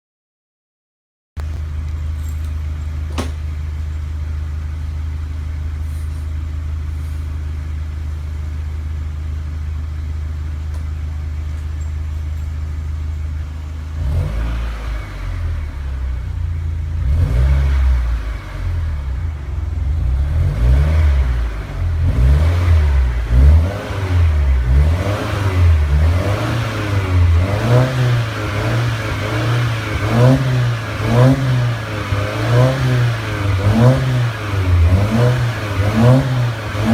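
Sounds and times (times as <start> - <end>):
car engine idling: 1.4 - 36.9
engine revving in throttle blips: 13.4 - 36.9.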